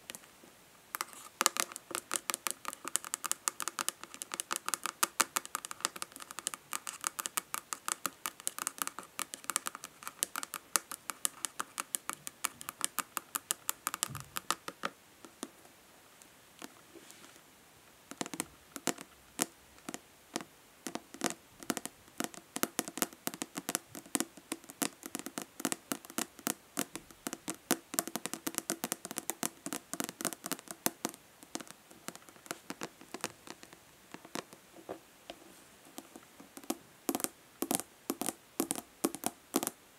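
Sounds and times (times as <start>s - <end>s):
fingernails tapping plastic bottle: 36.0s - 39.8s.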